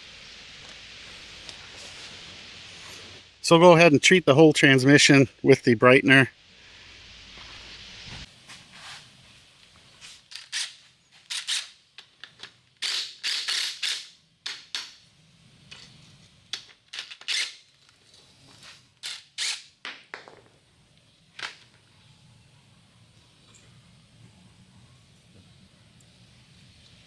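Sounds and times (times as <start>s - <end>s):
hand pump sprayer hissing squirts: 12.8s - 14.1s.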